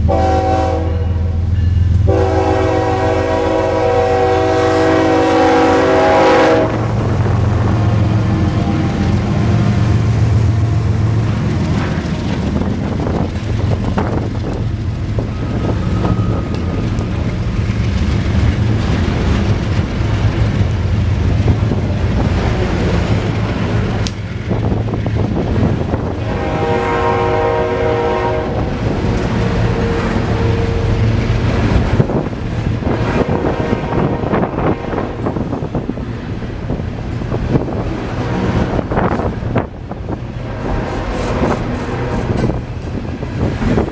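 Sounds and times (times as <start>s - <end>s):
locomotive air horn: 0.0s - 1.4s, 2.0s - 7.0s, 26.2s - 31.2s, 33.1s - 35.3s
train engine rumble: 0.0s - 43.9s
wind on microphone: 3.7s - 43.9s
train wheels clicking: 6.7s - 26.3s, 28.6s - 43.9s.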